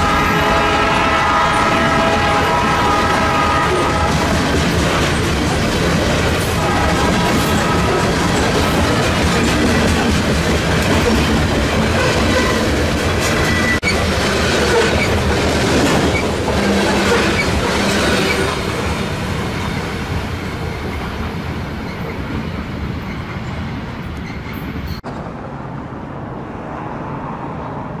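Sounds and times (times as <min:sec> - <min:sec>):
freight train wheels on rails: 0:00.0 - 0:25.4.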